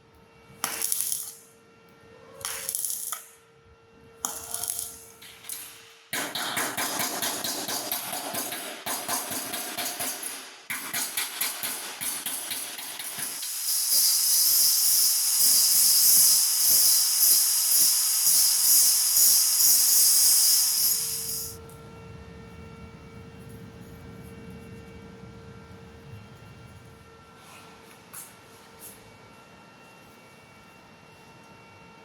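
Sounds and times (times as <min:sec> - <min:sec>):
welding arc crackling and hissing: 0:00.7 - 0:01.4, 0:09.0 - 0:21.6.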